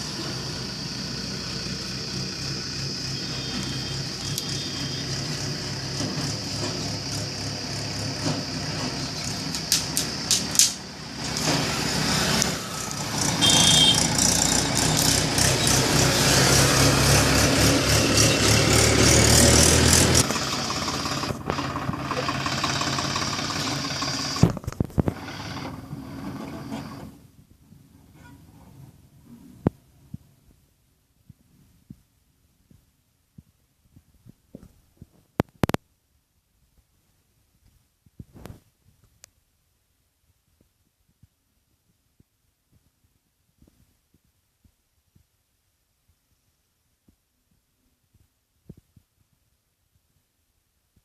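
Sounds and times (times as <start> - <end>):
tractor diesel engine running: 0.0 - 27.2.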